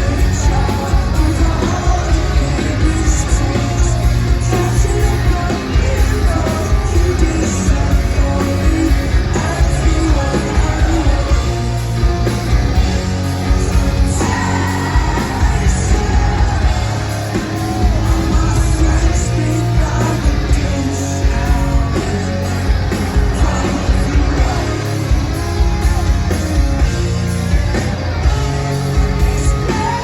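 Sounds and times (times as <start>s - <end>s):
live rock band playing: 0.0s - 30.0s
person singing or shouting: 13.6s - 26.4s, 28.2s - 30.0s.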